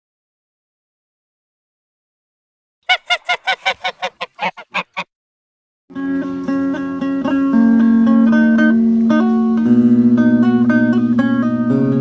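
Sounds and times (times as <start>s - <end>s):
rapid honking calls: 2.9s - 5.1s
guitar music: 5.9s - 12.0s.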